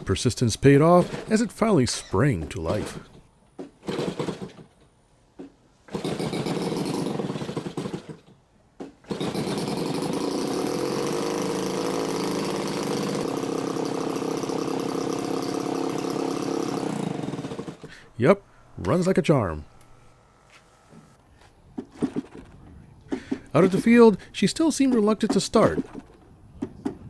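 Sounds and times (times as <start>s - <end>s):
model airplane engine starting: 9.0s - 20.3s.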